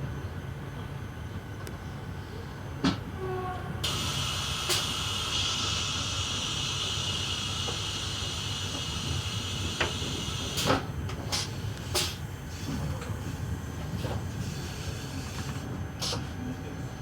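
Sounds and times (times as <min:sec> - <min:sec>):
train rumbling: 0:00.0 - 0:17.0
air hissing: 0:03.9 - 0:12.7.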